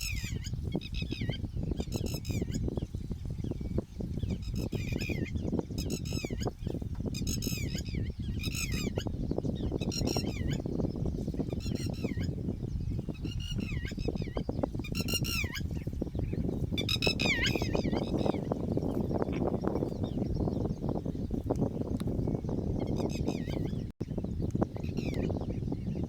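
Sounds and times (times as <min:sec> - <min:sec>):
lapwing alarm calls: 0:00.0 - 0:02.8, 0:03.4 - 0:21.4.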